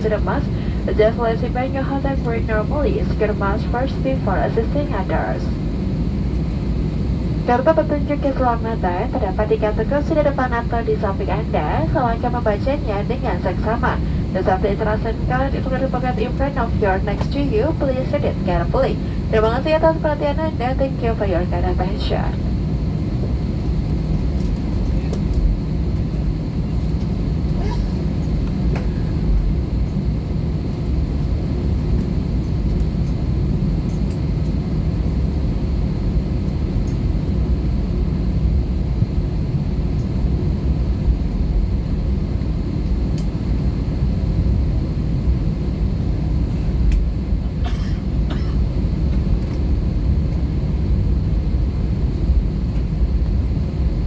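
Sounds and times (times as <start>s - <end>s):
faint high whine: 0.0s - 42.4s
aircraft cabin engine rumble: 0.0s - 54.0s.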